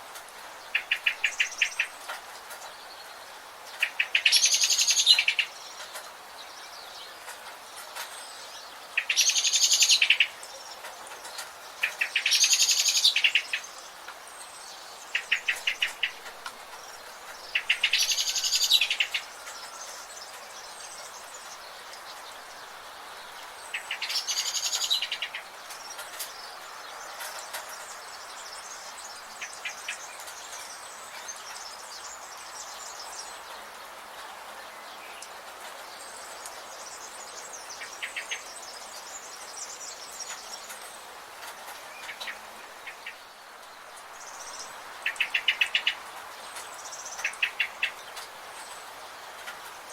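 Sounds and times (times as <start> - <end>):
steady hiss: 0.0 - 49.9
songbird singing trilled phrases: 0.7 - 2.0, 3.8 - 7.0, 8.2 - 22.8, 23.4 - 33.4, 44.1 - 48.9.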